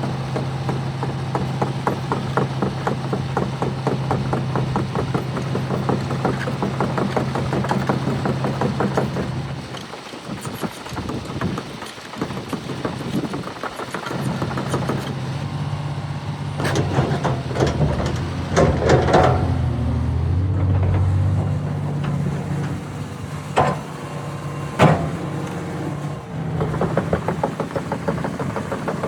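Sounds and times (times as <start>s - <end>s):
excavator diesel engine running: 0.0s - 29.0s
metallic clanks: 16.6s - 29.0s.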